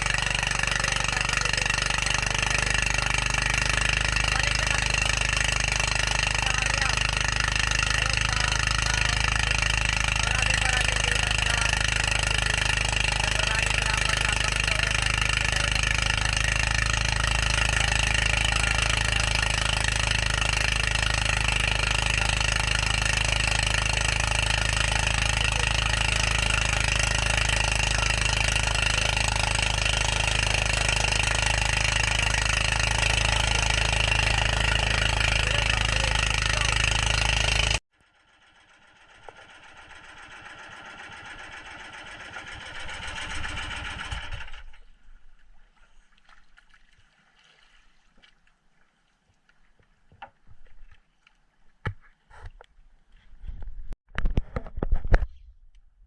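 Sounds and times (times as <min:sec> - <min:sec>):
boat engine knocking rhythmically: 0:00.0 - 0:37.8
faint engine: 0:00.0 - 0:46.0.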